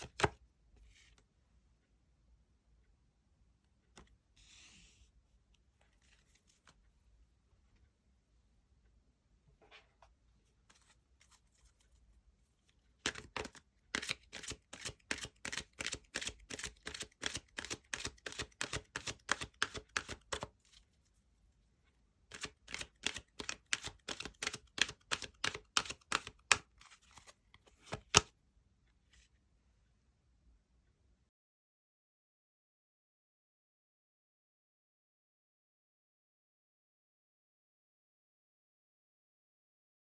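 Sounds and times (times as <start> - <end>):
cards being shuffled: 0.0 - 0.4, 13.0 - 20.8, 22.3 - 28.3.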